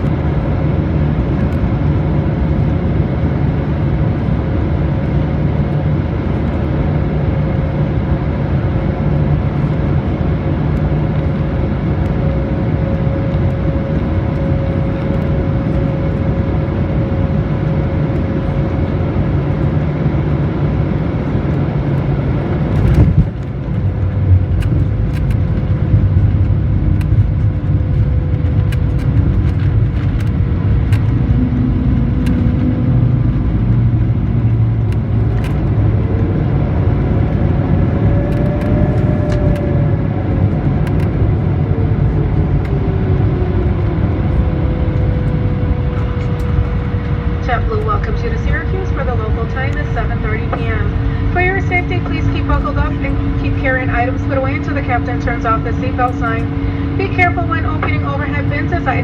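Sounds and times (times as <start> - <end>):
jet engine and airflow rumble: 0.0 - 59.0
steady whine: 0.0 - 59.0
rattles on runway rollout: 20.9 - 59.0.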